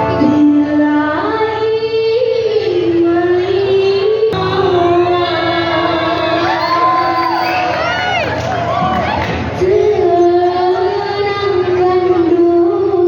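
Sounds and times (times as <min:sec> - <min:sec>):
choir singing long notes: 0:04.3 - 0:08.2.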